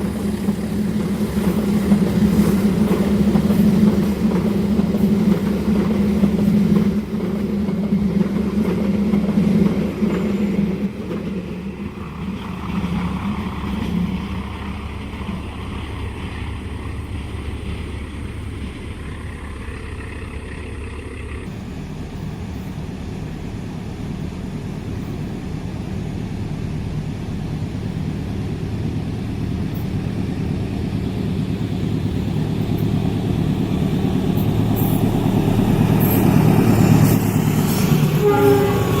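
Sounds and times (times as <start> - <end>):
diesel train passing: 0.0 - 39.0
diesel engine hum: 12.0 - 39.0.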